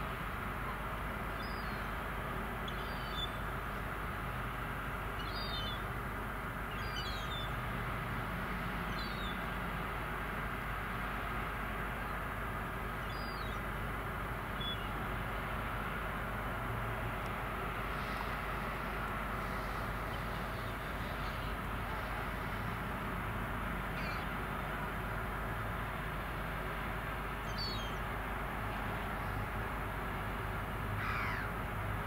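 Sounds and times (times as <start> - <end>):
low drone and hiss: 0.0 - 32.0.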